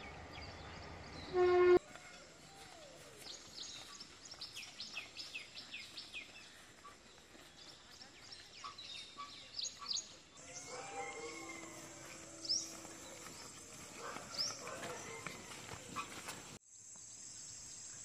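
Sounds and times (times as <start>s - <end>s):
small birds chirping: 2.0s - 18.0s.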